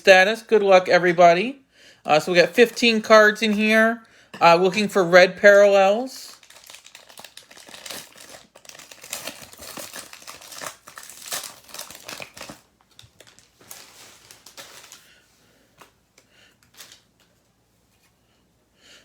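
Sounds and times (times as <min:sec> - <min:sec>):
foil wrapper tearing and crinkling: 0:06.2 - 0:15.2, 0:16.6 - 0:17.3.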